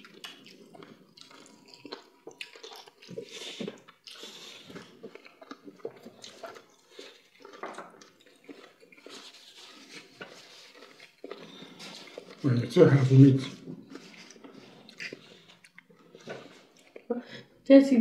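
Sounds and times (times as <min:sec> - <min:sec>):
wet chewing and lip smacks: 0:00.0 - 0:12.5, 0:13.4 - 0:17.2
fingers squelching food: 0:13.4 - 0:17.1.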